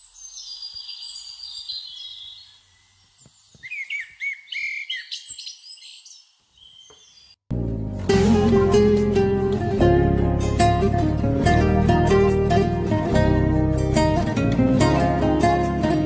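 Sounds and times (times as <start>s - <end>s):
small birds singing: 0.0s - 7.4s.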